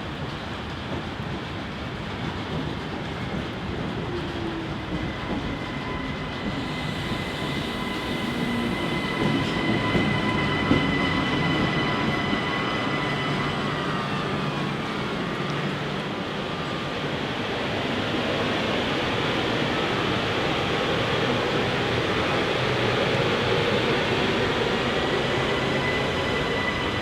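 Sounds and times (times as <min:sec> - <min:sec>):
train running past: 0:00.0 - 0:27.0
high steady squeal: 0:05.0 - 0:15.4, 0:19.1 - 0:27.0.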